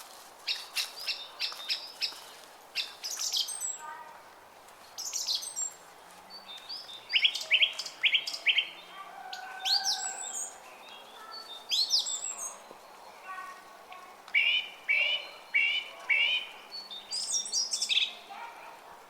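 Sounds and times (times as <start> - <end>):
songbirds chirping and singing: 5.0 - 13.5, 14.2 - 18.5.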